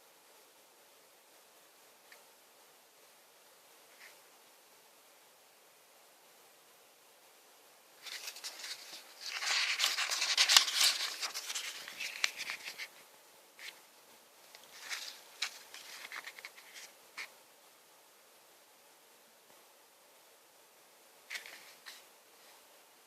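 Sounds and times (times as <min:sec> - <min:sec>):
packaging rustling and crinkling: 0:08.0 - 0:13.0, 0:14.6 - 0:16.9.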